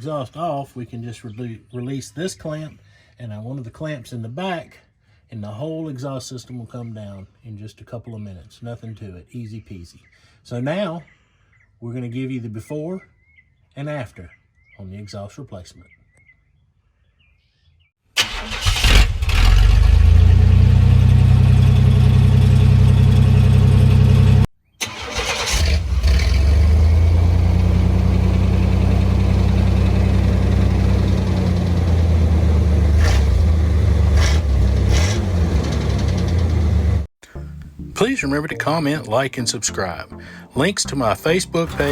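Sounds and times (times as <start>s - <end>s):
truck engine starting and idling: 18.2s - 38.2s, 40.2s - 41.9s.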